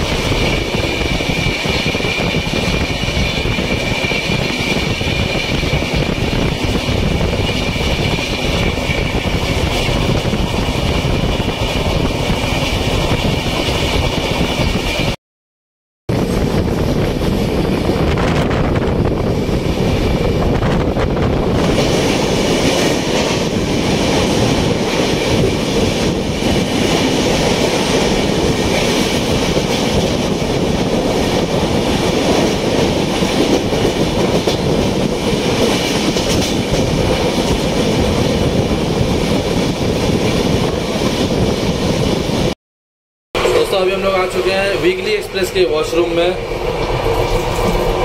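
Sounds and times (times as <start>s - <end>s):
train wheels rumbling on rails: 0.0s - 15.2s, 16.1s - 42.6s, 43.4s - 48.0s
clacks over rail joints: 32.2s - 38.2s.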